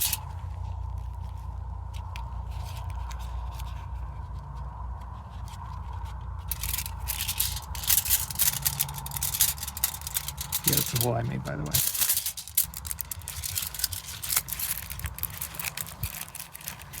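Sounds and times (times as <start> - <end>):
scraping and sharp clicks: 0.0 - 0.3, 5.5 - 17.0
low background rumble: 0.0 - 17.0.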